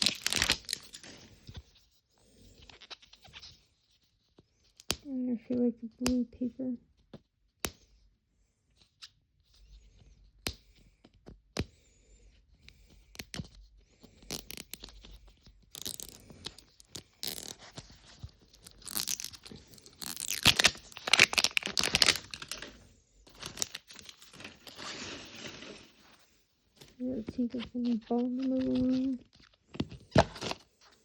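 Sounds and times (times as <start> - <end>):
paper tearing and crumpling: 0.0 - 1.3, 18.5 - 26.0, 30.1 - 30.6.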